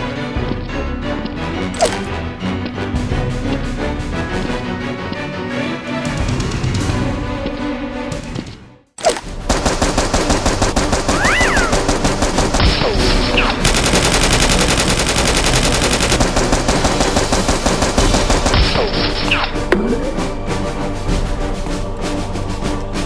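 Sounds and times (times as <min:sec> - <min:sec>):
rapid automatic gunfire: 0:09.5 - 0:19.0.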